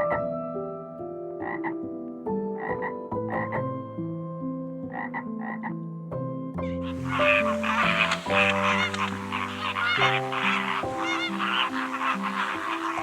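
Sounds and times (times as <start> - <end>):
slow background music: 0.0 - 13.0
frog croaking: 1.4 - 1.8, 4.9 - 5.8, 6.7 - 13.0.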